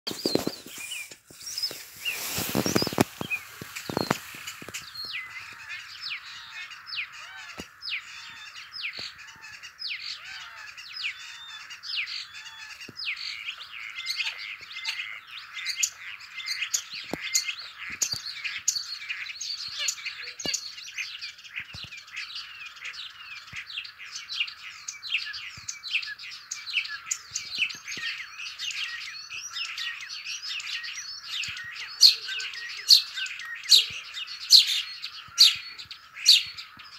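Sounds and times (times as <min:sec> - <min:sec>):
songbirds chirping: 0:00.0 - 0:36.9.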